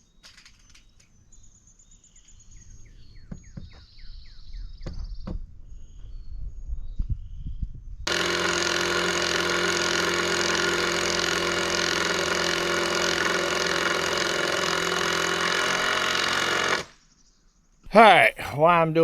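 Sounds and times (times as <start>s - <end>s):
engine running steadily: 8.1s - 16.8s.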